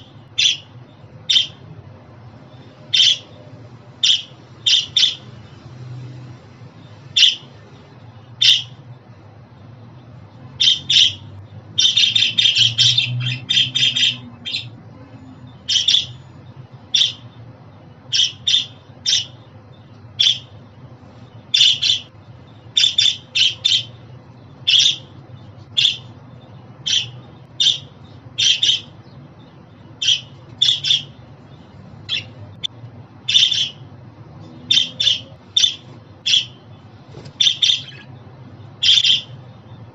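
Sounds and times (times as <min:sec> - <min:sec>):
faint low hum: 0:00.0 - 0:39.9
budgerigar chirping: 0:00.4 - 0:01.6, 0:02.9 - 0:03.4, 0:04.0 - 0:05.3, 0:07.2 - 0:07.5, 0:08.4 - 0:08.8, 0:10.6 - 0:14.8, 0:15.5 - 0:16.3, 0:16.9 - 0:17.4, 0:18.1 - 0:19.5, 0:20.2 - 0:20.6, 0:21.5 - 0:29.2, 0:29.9 - 0:31.2, 0:32.0 - 0:32.6, 0:33.2 - 0:33.9, 0:34.6 - 0:36.8, 0:37.4 - 0:39.5.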